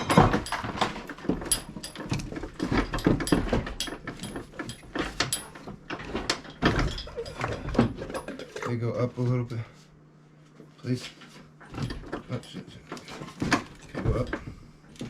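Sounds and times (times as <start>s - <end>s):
metal clanks and knocks: 0.0s - 8.7s.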